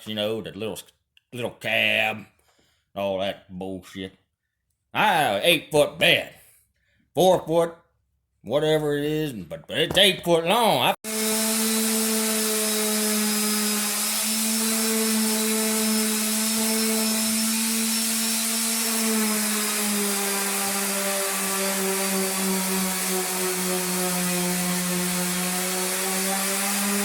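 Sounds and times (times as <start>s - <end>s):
small electric motor humming: 11.1s - 27.0s.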